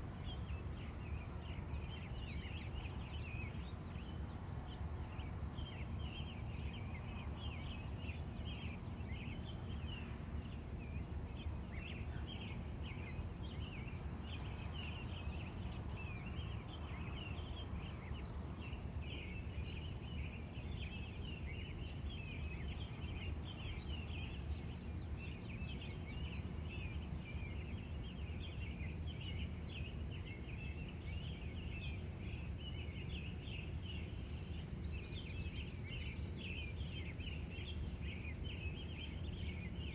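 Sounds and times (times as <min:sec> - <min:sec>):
insect trill: 0:00.0 - 0:39.9
birds chirping: 0:33.7 - 0:37.3.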